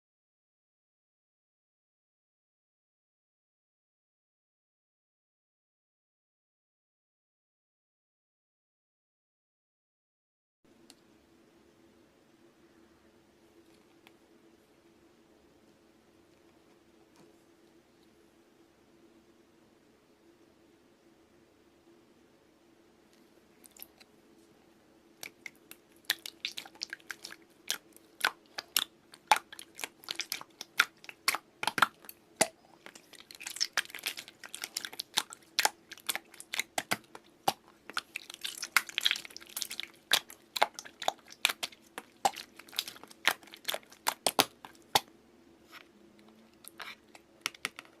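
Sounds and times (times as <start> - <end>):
faint steady hum: 10.7 - 48.0
slime squished with wet clicks: 25.2 - 45.1.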